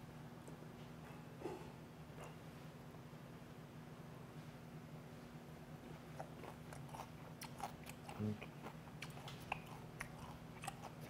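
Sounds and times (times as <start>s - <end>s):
close chewing with crunches: 6.0s - 11.0s.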